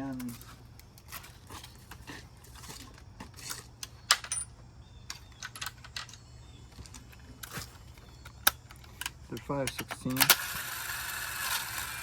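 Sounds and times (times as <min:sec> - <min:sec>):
metal bolts clinking: 0:01.1 - 0:10.4.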